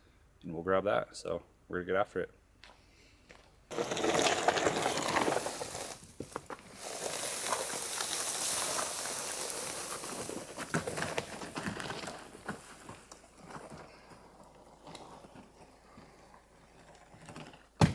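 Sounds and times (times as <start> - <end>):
footsteps in dry brush: 3.3 - 16.0.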